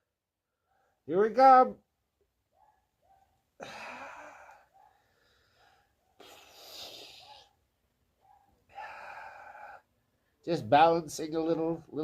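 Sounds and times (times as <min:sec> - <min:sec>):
man breathing hard: 0:03.6 - 0:07.5, 0:08.7 - 0:10.4.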